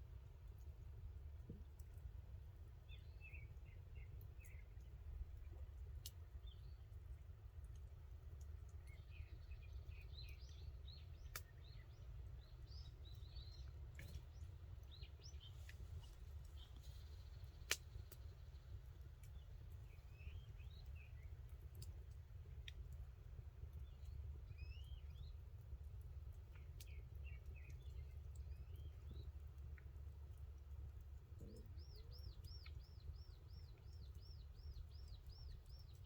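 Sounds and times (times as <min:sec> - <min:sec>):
faint bird chirps: 0:31.3 - 0:36.0.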